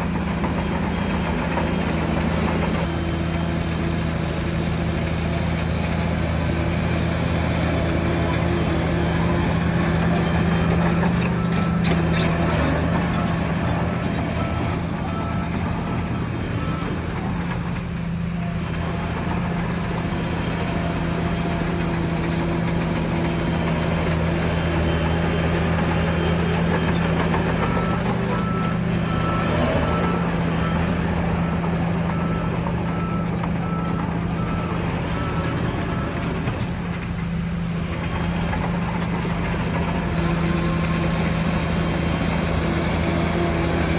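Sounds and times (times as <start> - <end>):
bulldozer diesel engine running: 0.0 - 43.9
reversing alarm beeping: 6.2 - 23.7, 24.4 - 36.5.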